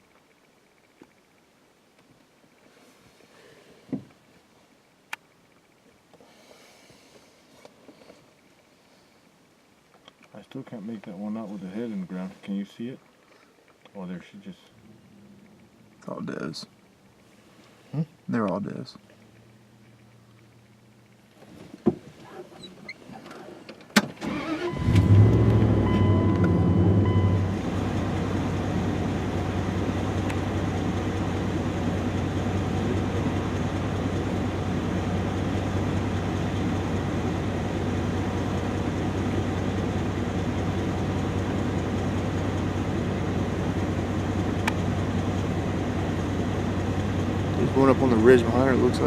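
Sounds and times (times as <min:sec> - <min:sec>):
vehicle engine starting and idling: 0:22.2 - 0:49.0.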